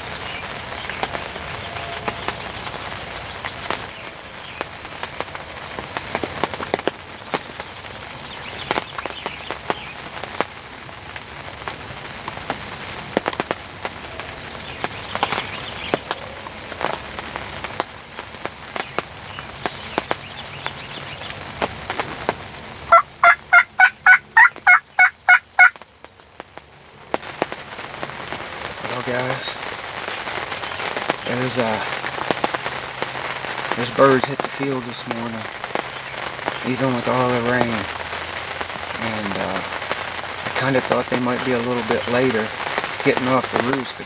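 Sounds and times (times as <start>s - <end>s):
rain pattering: 0.0s - 44.0s
wild turkey gobbling: 22.8s - 25.8s.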